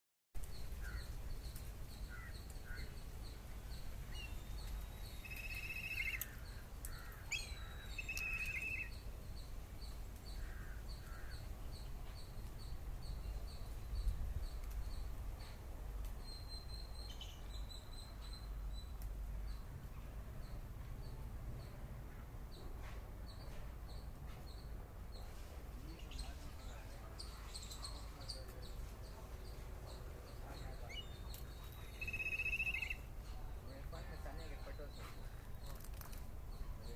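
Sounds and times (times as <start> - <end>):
bird trills: 4.1 - 6.4, 7.0 - 9.0, 30.7 - 33.1
high ticking bird call: 4.2 - 9.0, 30.8 - 33.1
caw-like bird calls: 5.4 - 8.9, 10.4 - 11.4.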